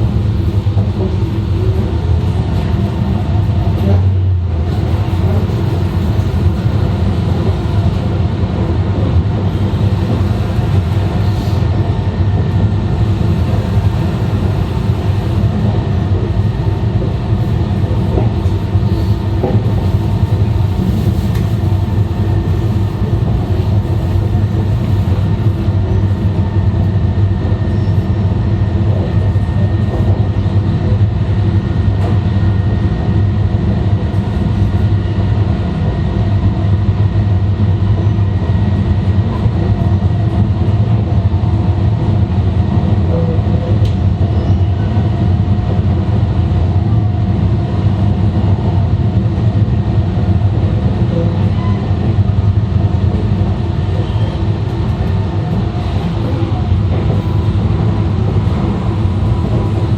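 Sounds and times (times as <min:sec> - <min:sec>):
train deep rumble: 0:00.0 - 0:59.9.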